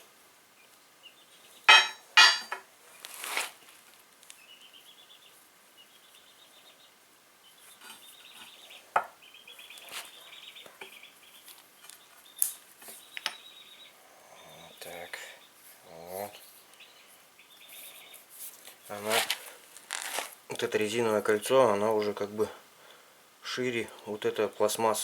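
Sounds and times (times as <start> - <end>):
sharp metallic clinks: 1.7 - 2.6.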